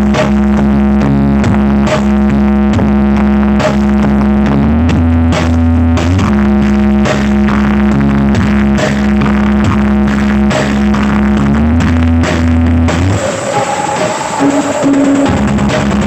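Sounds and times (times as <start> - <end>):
loud music with heavy bass: 0.0 - 16.0.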